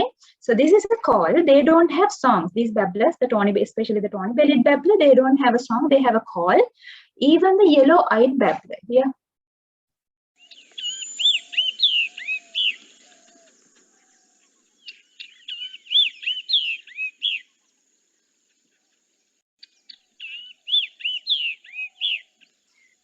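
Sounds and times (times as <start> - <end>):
bird calls played back: 10.4 - 13.5, 14.8 - 17.6, 19.9 - 23.0.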